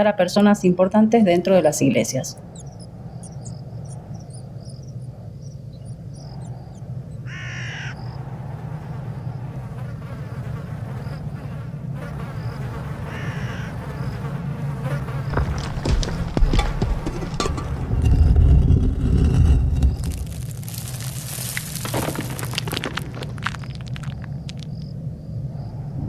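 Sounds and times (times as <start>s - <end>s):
low steady drone: 0.6s - 16.0s
crow cawing: 7.2s - 8.1s, 13.0s - 13.8s.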